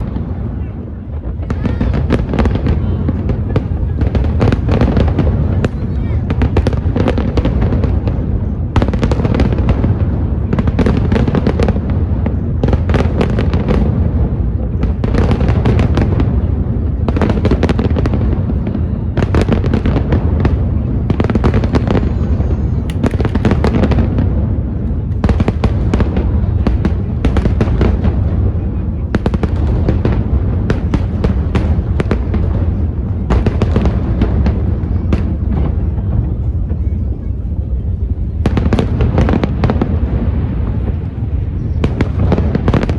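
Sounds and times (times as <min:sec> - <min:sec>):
crackling firework bangs: 0:00.0 - 0:37.1, 0:38.0 - 0:42.9
booming firework shells: 0:19.2 - 0:36.4.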